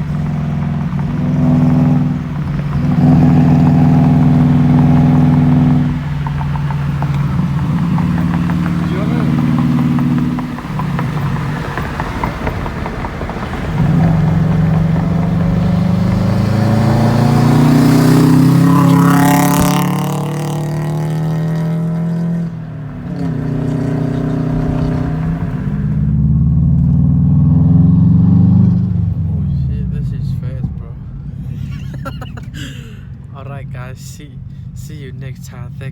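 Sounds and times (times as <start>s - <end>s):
car engine accelerating: 0.0s - 35.9s.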